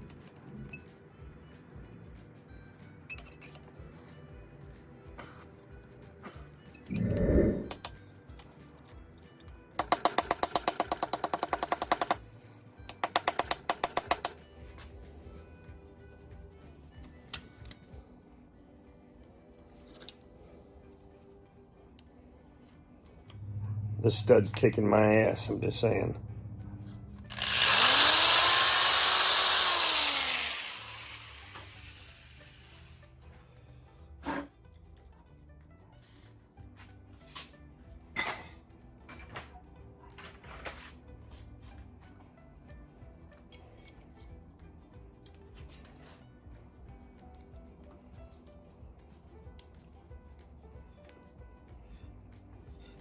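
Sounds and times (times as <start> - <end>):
hand tool clicking: 9.8 - 12.2, 12.9 - 14.4, 27.3 - 32.1
electric drill boring into metal: 27.2 - 32.9.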